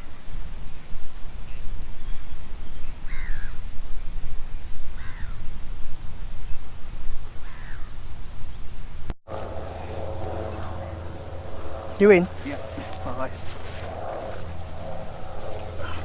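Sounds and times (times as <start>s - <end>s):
crow cawing: 5.0s - 5.4s, 7.4s - 7.9s, 9.3s - 16.0s
steady low rumble: 9.3s - 16.0s.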